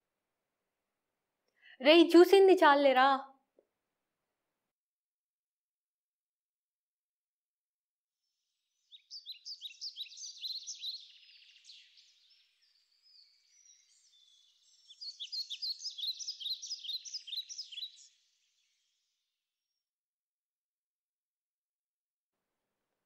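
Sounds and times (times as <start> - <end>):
small birds chirping: 8.6 - 19.1.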